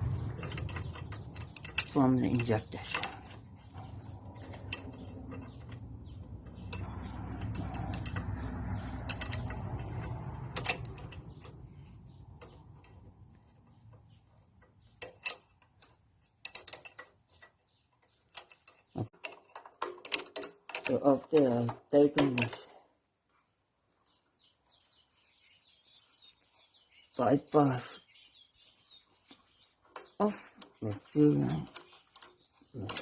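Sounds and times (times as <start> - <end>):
low rumble: 0.0 - 13.4
metallic clicks and taps of tools: 0.4 - 2.0, 14.6 - 22.7.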